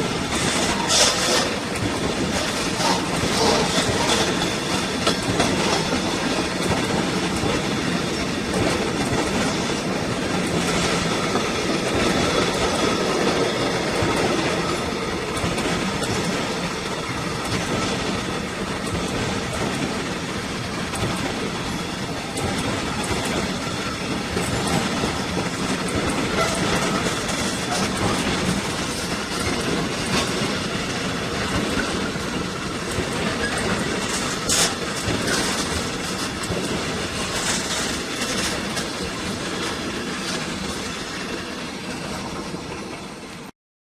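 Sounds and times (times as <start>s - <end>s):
train wheels clattering over track: 0.0s - 43.5s.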